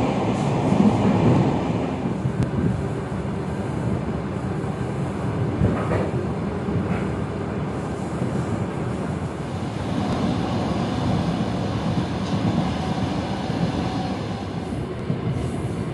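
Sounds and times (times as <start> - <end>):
train wheels rumbling on rails: 0.0 - 15.9
train knocks: 5.6 - 6.2.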